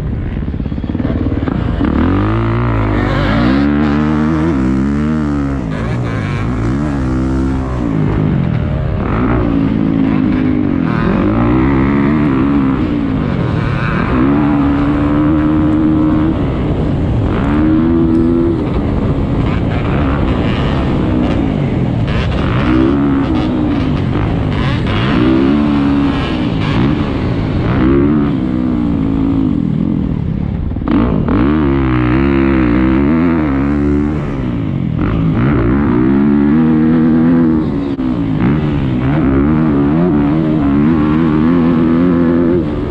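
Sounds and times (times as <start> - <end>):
motocross bike engine revving: 0.3 - 42.9.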